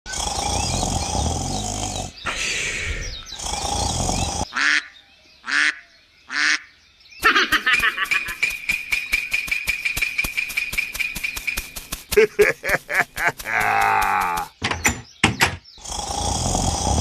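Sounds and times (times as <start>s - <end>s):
fast rhythmic clicking: 7.5s - 14.5s.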